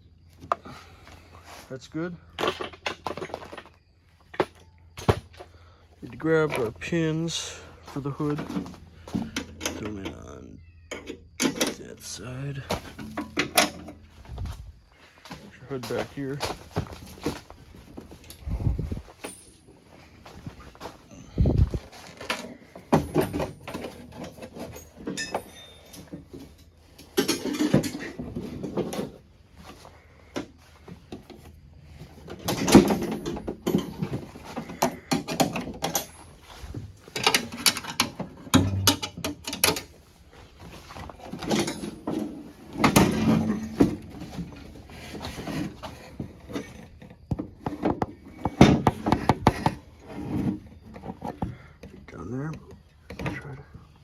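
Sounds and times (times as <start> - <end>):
snowmobile hood knocking and scraping: 40.6 - 51.6.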